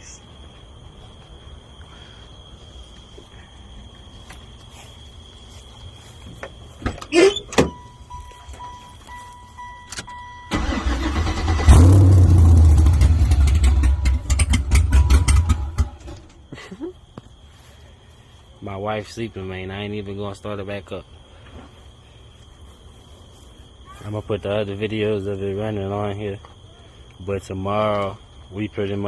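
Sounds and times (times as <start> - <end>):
beeping dash chime: 7.7 - 10.6
car engine cranking and running: 9.8 - 16.4.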